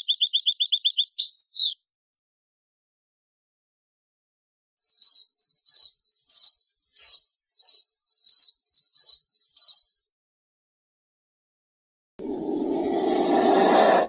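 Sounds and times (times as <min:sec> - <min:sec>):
bush cricket chirping: 0:04.8 - 0:10.1.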